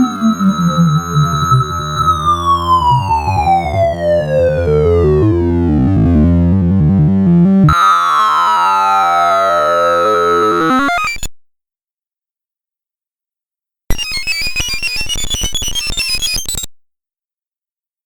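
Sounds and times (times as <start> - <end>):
synthesized stepping tones: 0.0 - 7.5.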